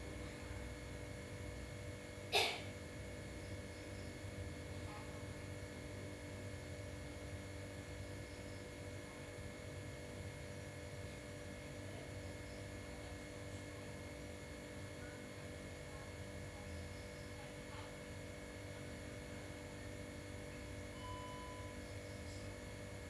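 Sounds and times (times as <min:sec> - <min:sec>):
faint steady tone: 0:20.5 - 0:22.6.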